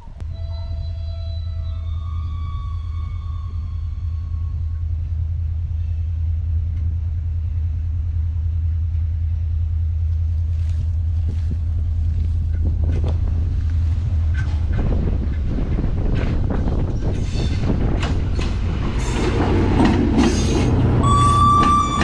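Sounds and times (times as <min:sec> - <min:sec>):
train rumbling: 0:00.0 - 0:22.0
wheels clacking on rails: 0:10.0 - 0:22.0.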